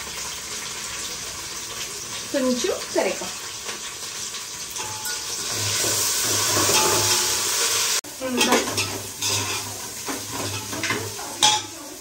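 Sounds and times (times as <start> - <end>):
onions sizzling in oil: 0.0 - 12.0
metal spoon scraping pot: 4.8 - 7.7, 8.4 - 11.7.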